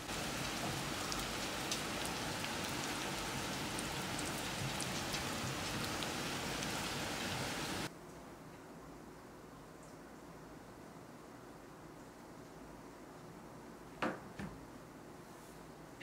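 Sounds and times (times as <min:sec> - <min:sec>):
heavy rain pouring: 0:00.0 - 0:07.9
raindrops ticking on surfaces: 0:00.0 - 0:08.2.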